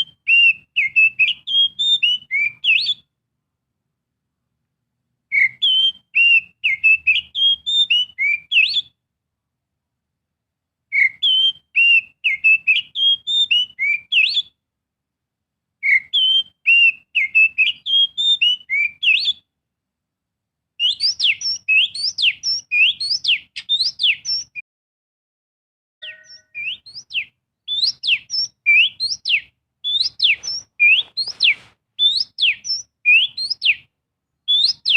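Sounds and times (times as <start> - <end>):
bird song whistled notes: 0.0 - 3.1, 5.3 - 9.0, 10.9 - 14.6, 15.8 - 19.5, 20.8 - 24.6, 26.0 - 34.9
rising bird whistles: 0.0 - 3.1, 5.3 - 8.9, 10.9 - 14.5, 15.8 - 19.4, 20.8 - 24.6, 26.0 - 33.9, 34.5 - 34.9.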